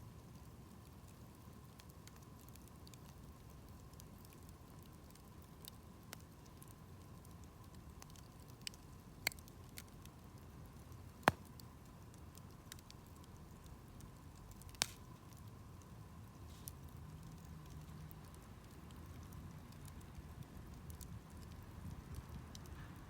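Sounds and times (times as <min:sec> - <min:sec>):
campfire flame rustle: 0:00.0 - 0:23.0
campfire pops and snaps: 0:07.4 - 0:10.2, 0:10.9 - 0:13.8, 0:14.4 - 0:15.9, 0:16.6 - 0:22.8.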